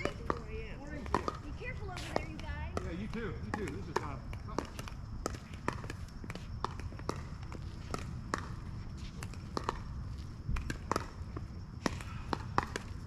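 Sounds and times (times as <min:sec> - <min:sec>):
ball bouncing on wet court: 0:00.0 - 0:13.0.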